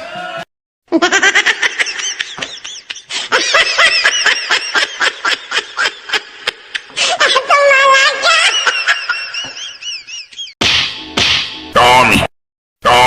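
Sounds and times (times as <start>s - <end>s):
person laughing: 0.9s - 7.5s, 8.2s - 10.6s.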